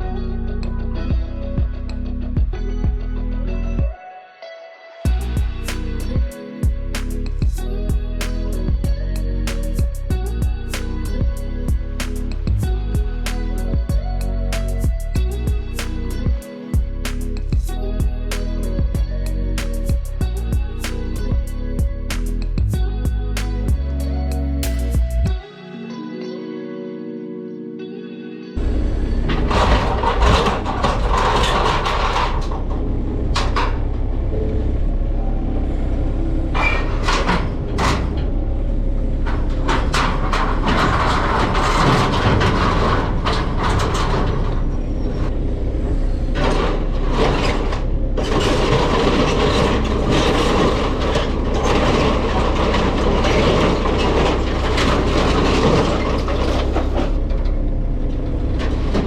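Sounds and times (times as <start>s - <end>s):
knocks and clanks: 5.1s - 24.0s, 29.3s - 34.1s, 36.6s - 38.4s, 39.2s - 45.3s, 46.3s - 57.6s.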